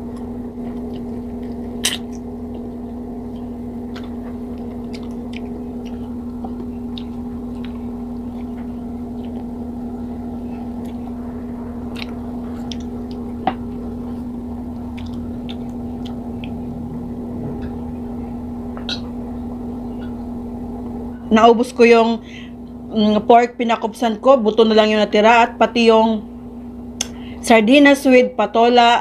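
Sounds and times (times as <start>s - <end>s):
person chewing: 0.0s - 11.2s, 11.8s - 17.9s
steady low hum: 0.0s - 29.0s.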